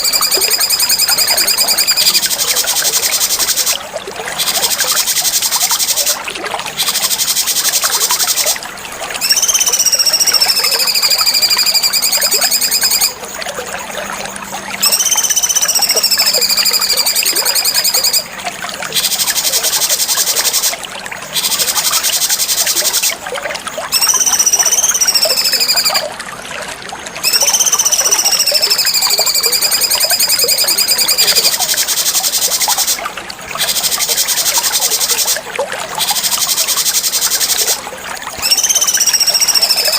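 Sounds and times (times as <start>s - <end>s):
bird whistling long notes: 0.0s - 3.4s, 9.2s - 13.2s, 14.8s - 18.2s, 23.9s - 26.1s, 27.2s - 33.0s, 38.4s - 39.9s
rapid high chirring: 0.0s - 3.8s, 9.2s - 13.2s, 14.8s - 18.3s, 23.9s - 26.0s, 27.2s - 33.0s, 38.4s - 39.9s.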